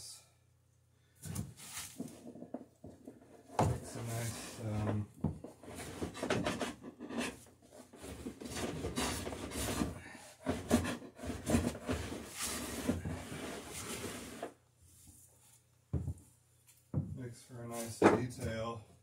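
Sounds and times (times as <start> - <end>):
tool scraping wood: 1.6 - 14.6.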